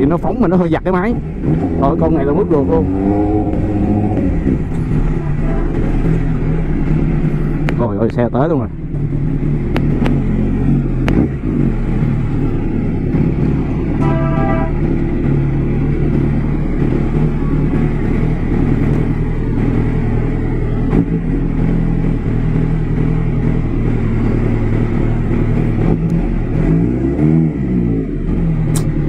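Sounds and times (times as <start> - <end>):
motorcycle engine at low revs: 0.0 - 29.0
short horn beep: 14.0 - 14.9.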